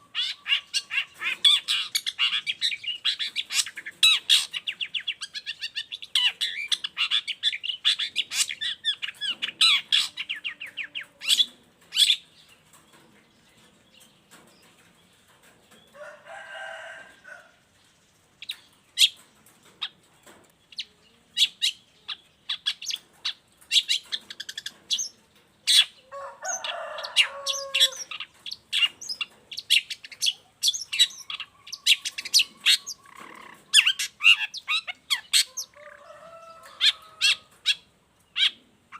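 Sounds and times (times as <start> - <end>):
sharp high bird calls: 0.0 - 12.3, 20.7 - 38.6
harsh rasping bird calls: 0.0 - 13.0, 18.4 - 38.9.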